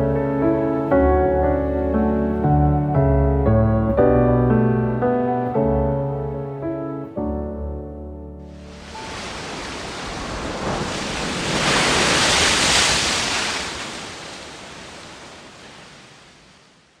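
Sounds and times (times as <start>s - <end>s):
piano notes: 0.0s - 10.4s
sea waves washing ashore: 8.5s - 17.0s.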